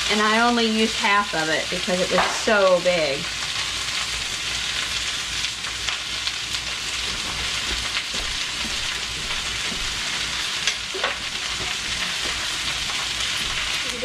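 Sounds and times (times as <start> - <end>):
vegetables sizzling in a skillet: 0.0 - 14.0
spatula scraping pan: 6.8 - 14.0.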